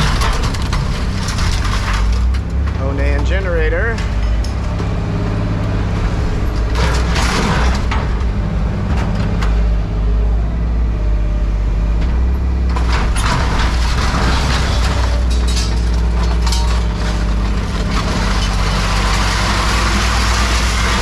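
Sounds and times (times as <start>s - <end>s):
heavy equipment engine running: 0.0s - 21.0s
rough bursts of scrap being worked: 13.4s - 21.0s.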